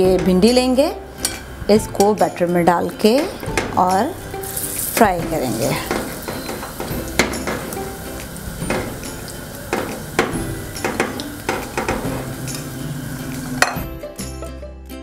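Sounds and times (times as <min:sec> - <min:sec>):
okra deep-frying in oil: 0:03.4 - 0:13.8
oil popping and crackling: 0:04.4 - 0:13.8.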